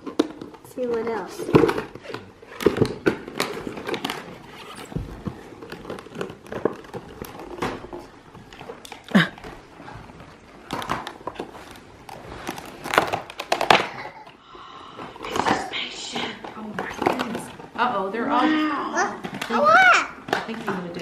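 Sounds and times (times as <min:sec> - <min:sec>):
handling clicks and knocks: 0:00.0 - 0:09.1
paper and packaging rustling: 0:00.0 - 0:14.4, 0:15.1 - 0:18.3.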